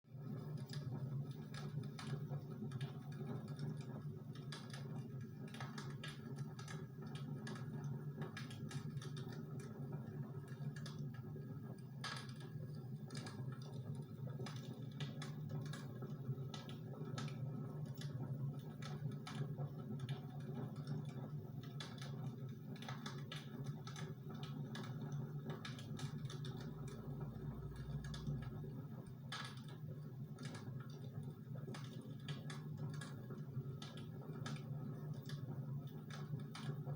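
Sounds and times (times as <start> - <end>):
low steady hum: 24.8 - 31.8.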